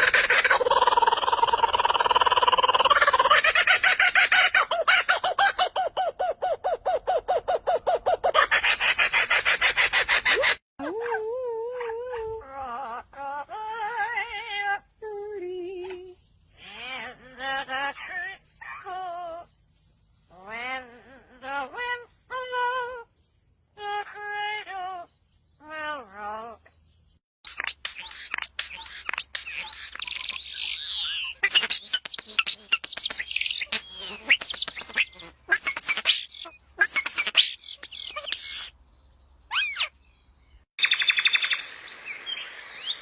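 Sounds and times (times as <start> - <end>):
bird calling rapid notes: 27.4 - 38.7.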